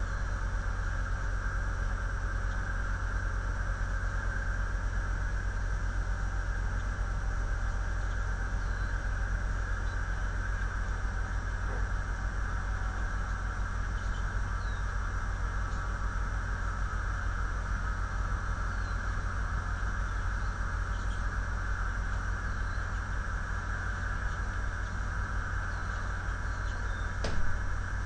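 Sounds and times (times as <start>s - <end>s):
electrical hum and hiss: 0.0s - 28.0s
faint high bird chirps: 8.0s - 9.0s, 14.0s - 14.9s, 18.4s - 19.2s, 20.0s - 21.2s, 22.4s - 23.0s, 25.6s - 27.4s.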